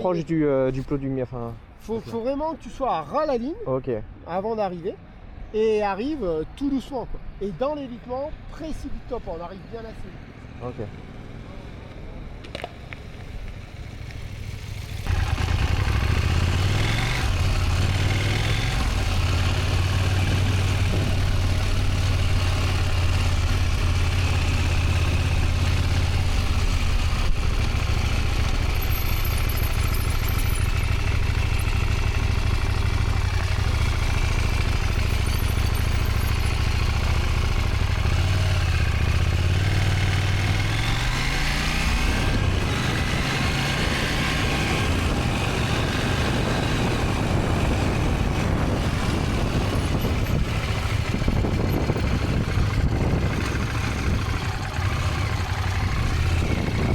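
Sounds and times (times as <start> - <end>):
motorcycle engine: 10.4 - 56.9
wind noise on microphone: 19.8 - 22.4, 41.8 - 56.9.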